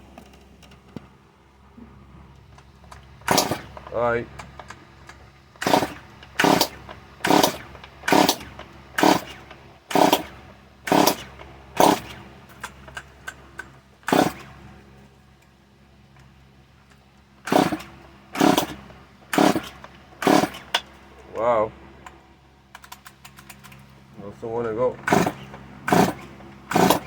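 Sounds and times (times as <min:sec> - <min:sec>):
chainsaw engine turning over: 0:02.6 - 0:14.7, 0:17.4 - 0:21.5, 0:24.9 - 0:27.0
chainsaw recoil starter pulls: 0:02.9 - 0:14.7, 0:17.4 - 0:21.6, 0:24.9 - 0:27.0.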